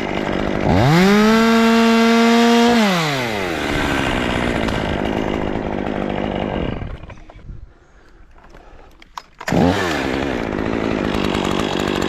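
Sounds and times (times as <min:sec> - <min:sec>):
chainsaw engine revving: 0:00.0 - 0:07.5, 0:09.4 - 0:12.0.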